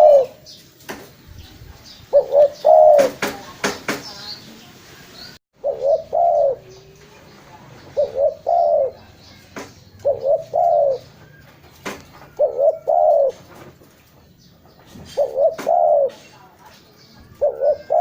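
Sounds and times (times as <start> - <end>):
dove cooing: 0.0 - 0.6, 2.1 - 3.4, 5.6 - 7.0, 7.8 - 9.1, 10.0 - 11.5, 12.2 - 13.6, 15.0 - 16.3, 17.3 - 18.0.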